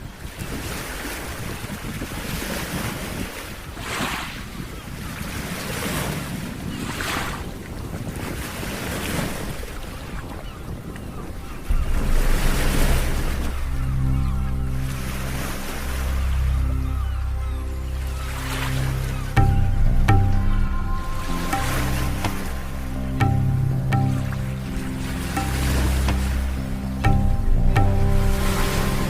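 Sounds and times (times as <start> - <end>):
wind on the microphone: 0.0 - 15.7
ocean waves on a beach: 0.0 - 29.0
music: 11.6 - 29.0.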